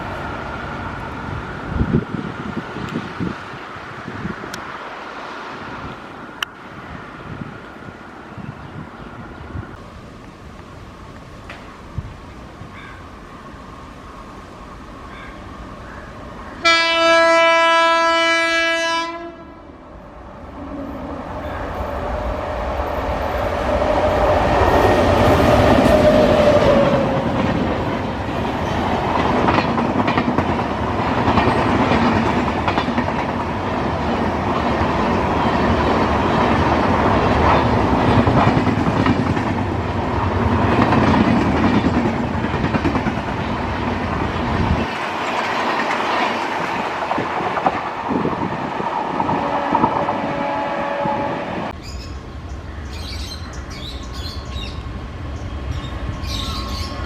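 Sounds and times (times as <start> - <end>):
train horn blast: 16.6 - 19.8, 49.2 - 51.8
train wheels clattering over rails: 22.6 - 50.2.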